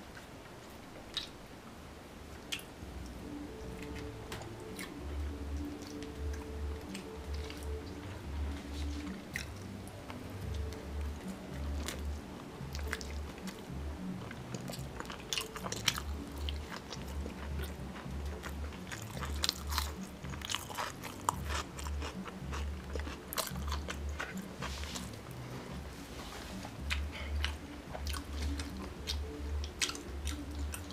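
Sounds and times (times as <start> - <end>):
wet mouth clicks: 1.1 - 1.4
person chewing food: 2.4 - 30.9
background music with bass beat: 2.8 - 30.9.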